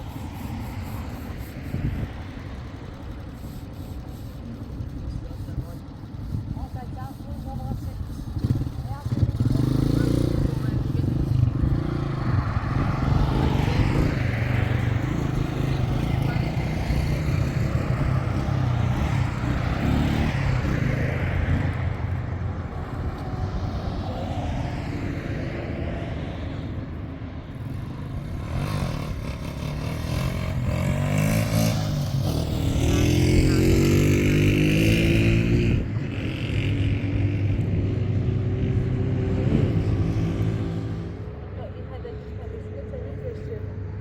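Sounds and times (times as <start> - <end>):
vehicle engine revving: 8.2 - 41.3.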